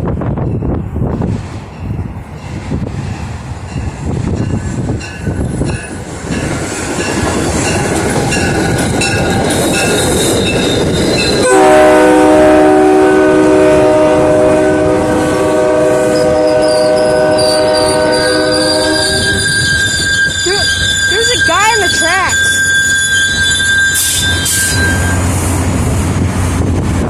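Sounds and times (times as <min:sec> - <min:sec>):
train rumbling along track: 0:00.0 - 0:27.0
locomotive horn chord: 0:11.4 - 0:19.6.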